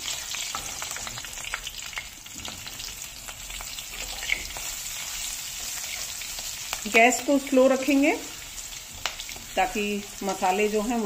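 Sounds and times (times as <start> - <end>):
spatula stirring in oil: 0.0 - 7.0
frying hiss with small pops: 8.0 - 10.8.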